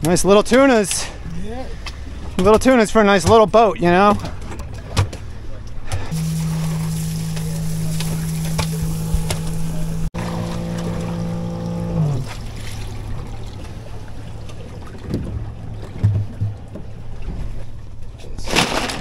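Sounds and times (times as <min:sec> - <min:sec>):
water noise: 0:00.0 - 0:19.0
outboard motor running: 0:04.0 - 0:18.7.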